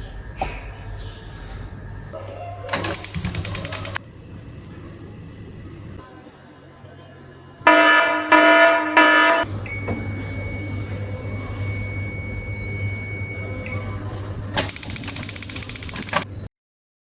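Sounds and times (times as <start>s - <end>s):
appliance humming: 0.0s - 6.0s, 9.4s - 16.4s
rapid sharp clicks: 2.7s - 4.0s, 14.6s - 16.3s
electronic beeps: 14.7s - 16.2s.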